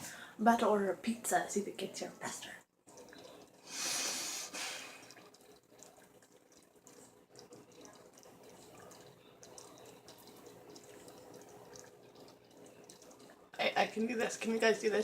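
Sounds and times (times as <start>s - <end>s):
sauce simmering and bubbling: 2.7s - 15.0s.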